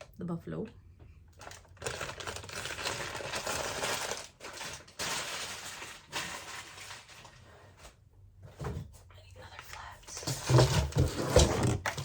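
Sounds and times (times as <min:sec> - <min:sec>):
plastic bags crinkling: 0:01.3 - 0:07.5.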